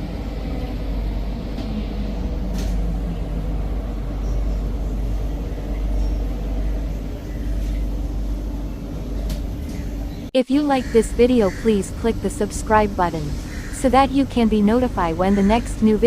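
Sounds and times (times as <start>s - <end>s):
train rumble: 0.0s - 16.0s.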